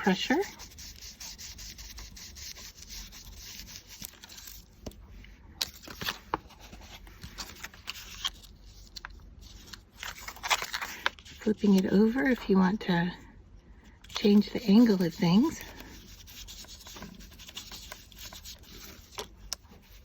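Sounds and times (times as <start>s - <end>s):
brush rubbing ink on paper: 0.0s - 4.6s, 14.1s - 20.0s.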